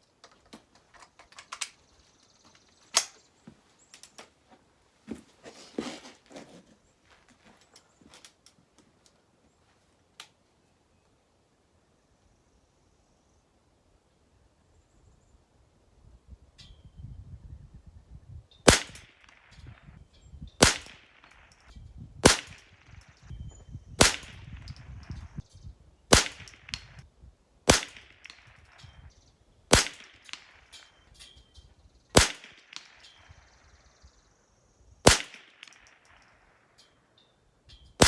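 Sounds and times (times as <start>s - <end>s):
rifle shots: 18.7s - 19.6s, 20.6s - 23.2s, 24.0s - 25.3s, 26.1s - 27.0s, 27.7s - 28.8s, 29.7s - 30.7s, 32.2s - 33.1s, 35.0s - 36.4s.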